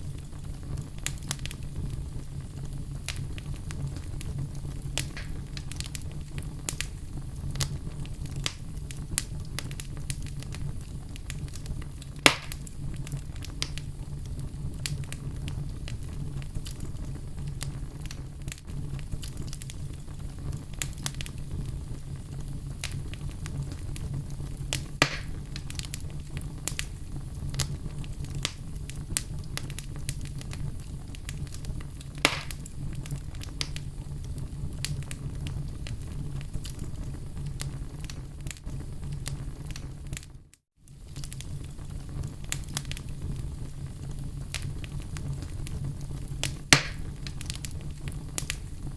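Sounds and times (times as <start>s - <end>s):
fire crackling: 0.0s - 48.9s
fire popping: 0.0s - 48.9s
fire rumbling: 0.0s - 48.9s.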